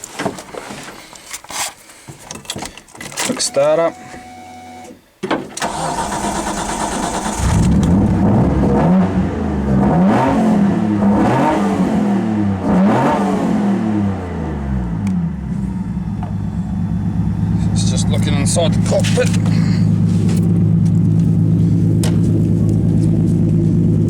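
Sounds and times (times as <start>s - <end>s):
car engine revving and idling: 5.9s - 24.0s.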